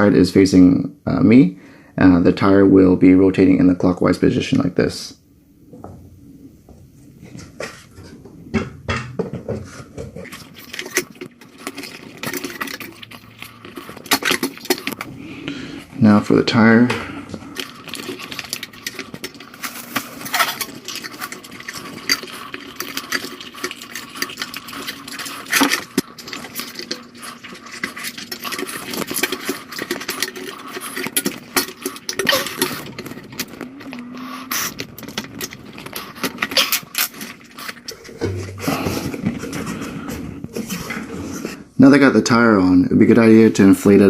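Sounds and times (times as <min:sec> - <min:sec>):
rubber scraping: 0:06.2 - 0:41.8.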